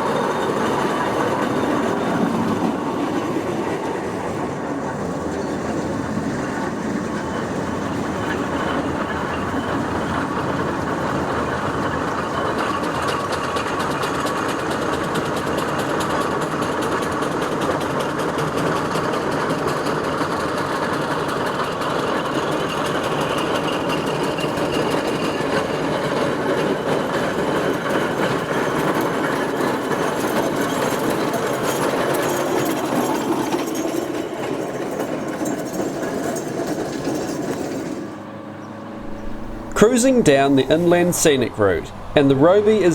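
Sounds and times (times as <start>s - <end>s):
steam traction engine running: 0.0s - 42.9s.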